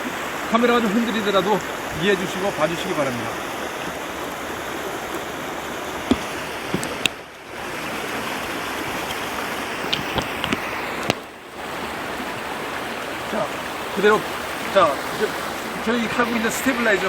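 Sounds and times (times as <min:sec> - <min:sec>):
river water rushing: 0:00.0 - 0:17.0
small knocks and clicks: 0:06.1 - 0:07.2, 0:09.9 - 0:11.2.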